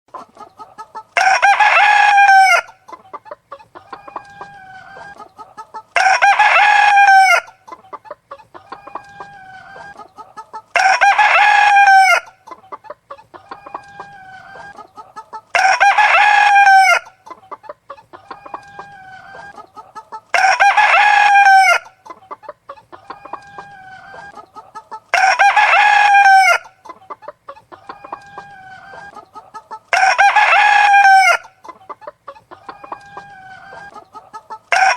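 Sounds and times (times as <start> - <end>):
chickens clucking: 0.1 - 34.9
rooster crowing: 1.2 - 2.8, 6.0 - 7.5, 10.8 - 12.3, 15.6 - 17.1, 20.4 - 21.9, 25.1 - 26.7, 29.9 - 31.5.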